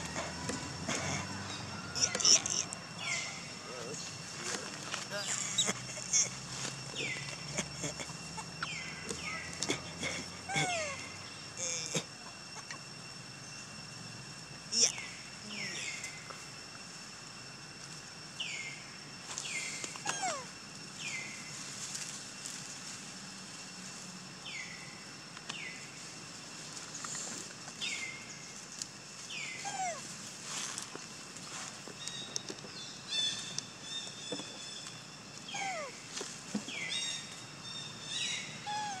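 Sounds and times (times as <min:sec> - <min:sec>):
birds whistling calls: 0:03.0 - 0:03.6, 0:36.7 - 0:39.0.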